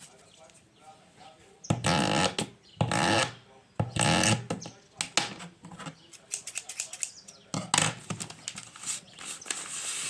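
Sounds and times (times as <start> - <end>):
rustling: 8.2 - 10.0.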